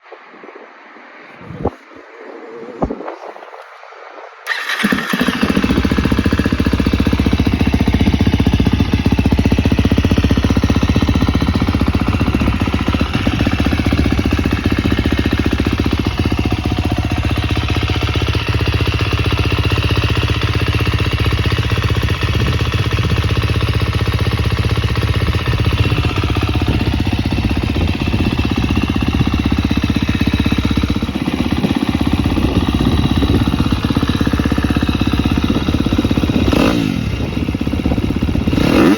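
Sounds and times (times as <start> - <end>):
dirt bike engine running: 4.5 - 38.9.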